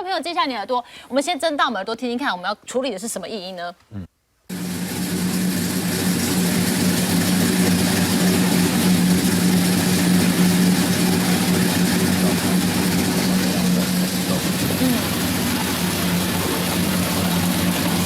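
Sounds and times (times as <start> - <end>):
rear wheel drone: 4.5 - 18.0
road noise: 4.5 - 18.0.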